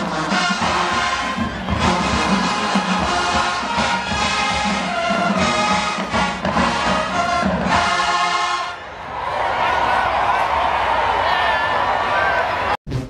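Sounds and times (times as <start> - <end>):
brass band playing a fanfare: 0.0 - 8.8.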